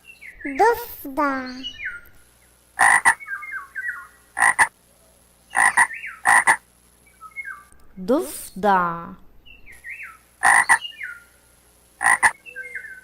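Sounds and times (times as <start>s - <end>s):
frog croaking: 2.8s - 3.3s, 3.9s - 4.7s, 5.5s - 6.6s, 10.4s - 10.9s, 12.0s - 12.4s.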